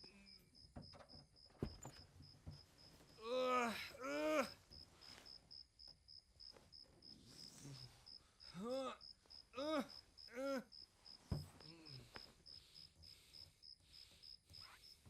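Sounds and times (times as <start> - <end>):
crickets chirping: 0.0 - 15.0
man groaning: 3.2 - 4.7, 8.5 - 9.0, 9.6 - 10.7.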